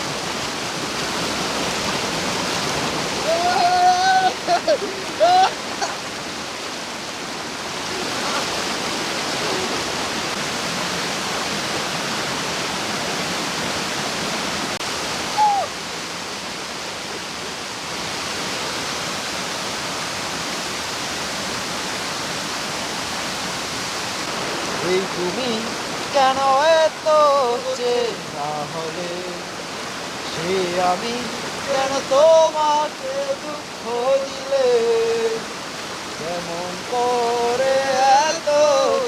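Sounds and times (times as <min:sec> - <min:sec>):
waterfall rushing: 0:00.0 - 0:39.0
short high falling call: 0:15.3 - 0:15.8.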